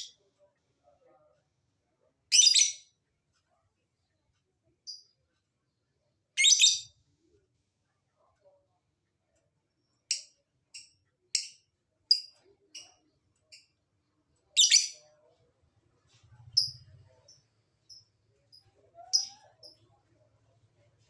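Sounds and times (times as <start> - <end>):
lovebird chirping: 6.4 - 7.0, 10.1 - 13.7, 14.5 - 15.1, 16.3 - 20.0.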